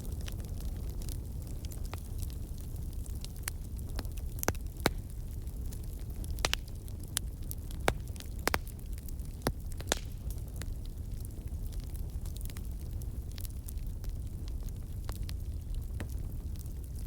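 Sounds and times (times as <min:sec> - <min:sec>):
wood fire crackling: 0:00.0 - 0:17.0
sharp pops and snaps: 0:07.8 - 0:08.7, 0:09.4 - 0:10.3.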